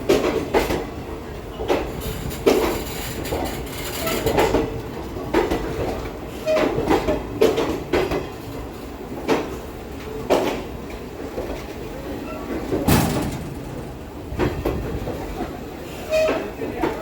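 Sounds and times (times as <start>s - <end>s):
train rumble: 0.0s - 17.0s
train wheels clanking over rail joints: 1.5s - 8.4s, 12.4s - 17.0s
brief wheel squeals: 16.0s - 16.6s.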